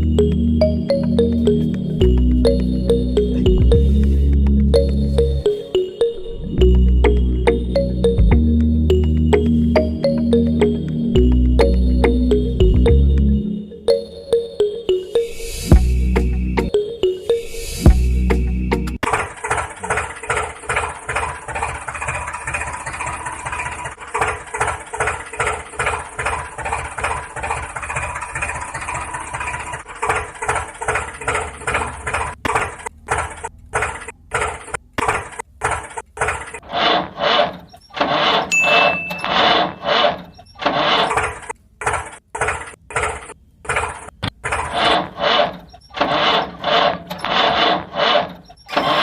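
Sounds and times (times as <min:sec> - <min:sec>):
small motor pulsing: 0:44.7 - 0:49.0.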